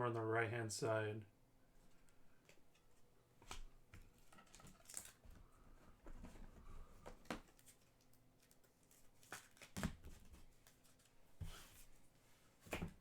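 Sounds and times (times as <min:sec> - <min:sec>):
trading cards clicking and rustling: 0:07.0 - 0:11.1.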